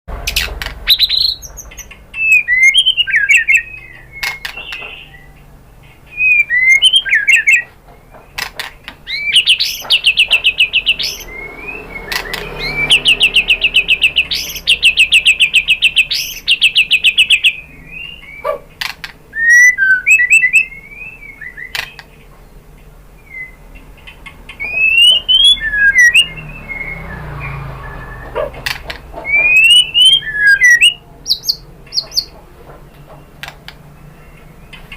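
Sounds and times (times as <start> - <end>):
bird rapid trills: 0.1 - 5.3, 8.3 - 20.7, 23.3 - 32.3
bird singing whistled phrases: 0.3 - 5.4, 6.1 - 7.7, 9.1 - 18.6, 19.3 - 22.1, 23.2 - 23.6, 24.5 - 28.4, 29.2 - 32.3.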